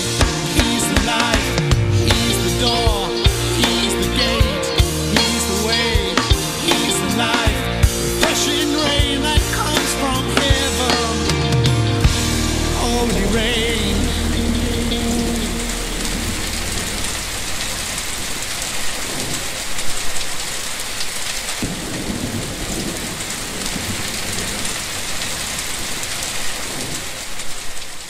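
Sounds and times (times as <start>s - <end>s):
song: 0.0s - 18.6s
heavy rain: 0.0s - 28.0s
thunder rumbling: 11.8s - 20.6s, 21.2s - 27.4s.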